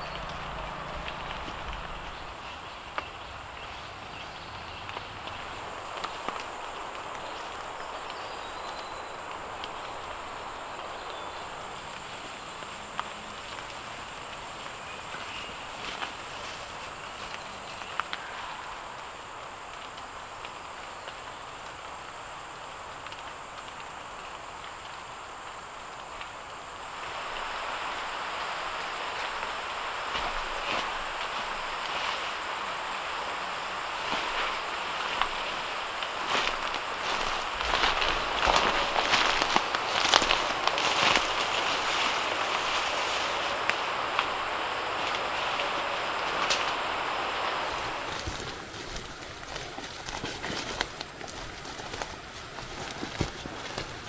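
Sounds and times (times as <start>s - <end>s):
insect chorus drone: 0.0s - 54.0s.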